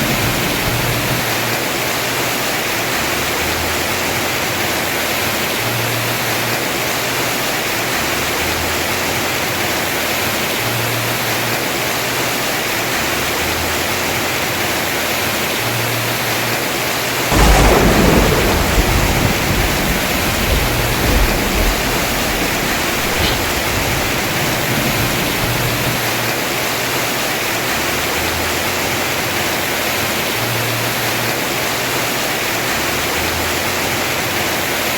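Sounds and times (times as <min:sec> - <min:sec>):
heavy rain on a roof: 0:00.0 - 0:34.9
thunder clap rumbling: 0:17.3 - 0:26.3.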